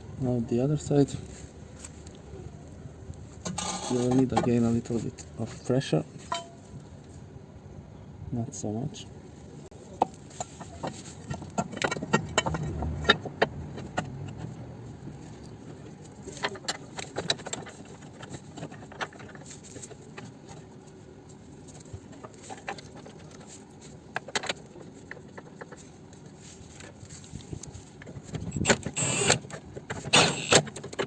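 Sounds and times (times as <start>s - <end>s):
hand tools clinking on metal: 3.5s - 4.5s, 6.2s - 6.7s.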